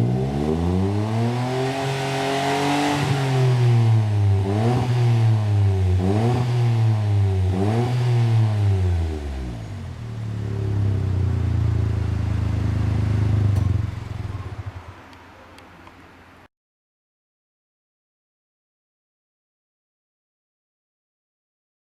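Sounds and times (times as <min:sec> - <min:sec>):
deep car exhaust revving and idling: 0:00.0 - 0:14.9.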